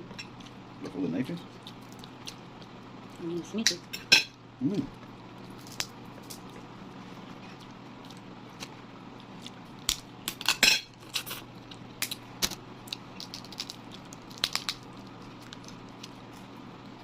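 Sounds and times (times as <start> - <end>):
crab shell cracking and scraping: 5.5 - 6.5, 12.0 - 16.5.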